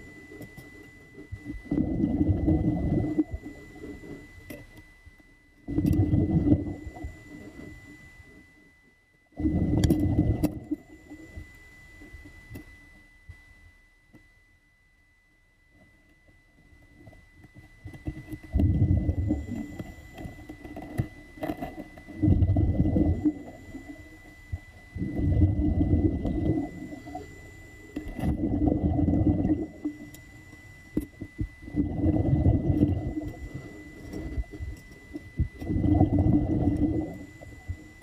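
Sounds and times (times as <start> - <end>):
faint high whine: 0.0 - 38.0
muffled rumbling water surges: 22.2 - 38.0.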